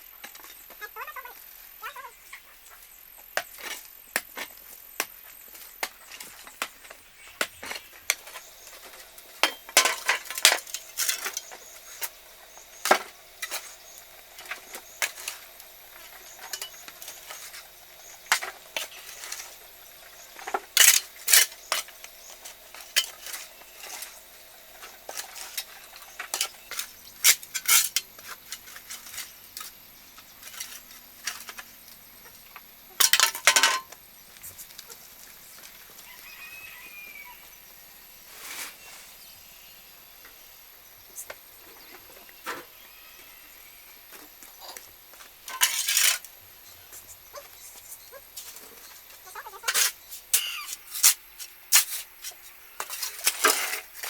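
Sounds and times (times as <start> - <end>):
hard objects clinking and knocking: 33.0 - 33.9.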